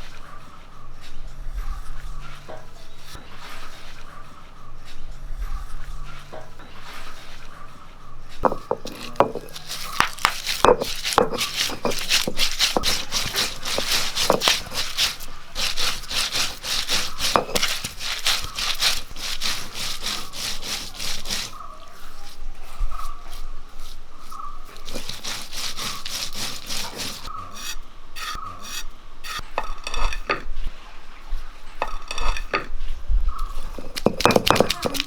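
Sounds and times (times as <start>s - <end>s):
grinding paste with scraping strokes: 8.4s - 30.4s, 31.8s - 32.7s, 33.6s - 35.0s.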